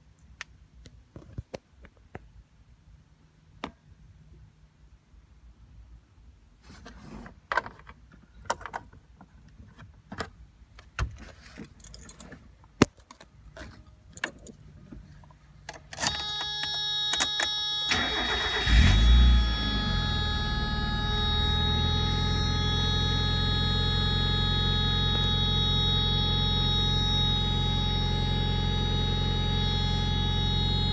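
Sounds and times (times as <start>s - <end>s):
car engine revving and idling: 18.2s - 30.9s.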